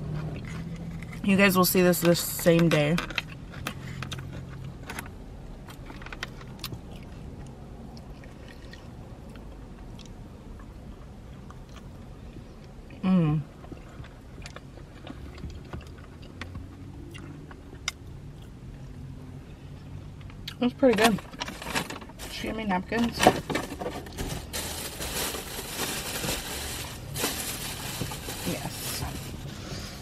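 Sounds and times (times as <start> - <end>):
person chewing: 5.7 - 13.0, 13.6 - 18.9.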